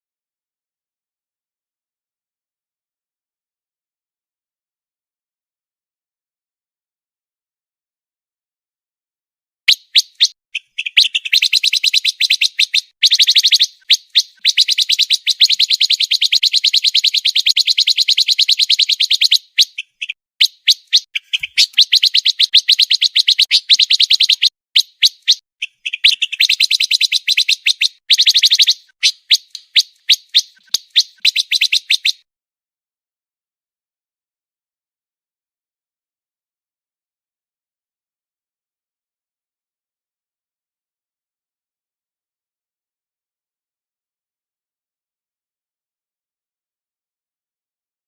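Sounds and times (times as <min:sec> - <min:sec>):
bird chirps: 0:09.7 - 0:32.2
songbird trilling: 0:09.7 - 0:32.2.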